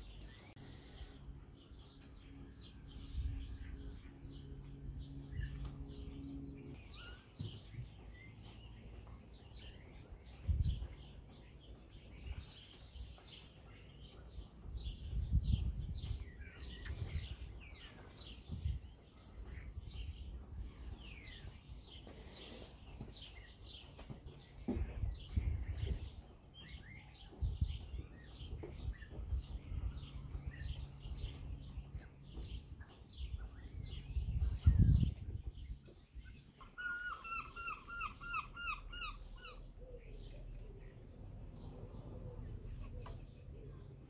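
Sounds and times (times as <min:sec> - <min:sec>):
low steady hum: 0:00.0 - 0:23.6
small birds chirping: 0:00.0 - 0:44.0.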